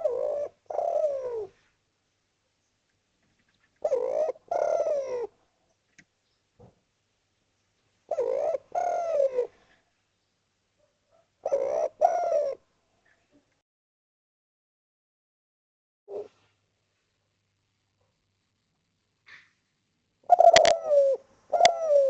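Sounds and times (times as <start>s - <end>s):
dove cooing: 0.0s - 1.6s, 3.8s - 5.4s, 8.1s - 9.8s, 11.1s - 12.6s, 16.1s - 16.4s, 20.2s - 22.0s.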